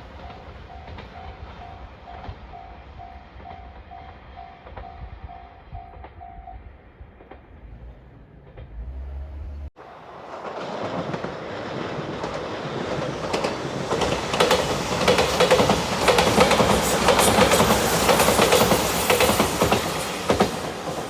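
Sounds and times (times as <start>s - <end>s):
electric train approaching: 0.0s - 21.0s
wheels clicking over rail joints: 9.8s - 21.0s.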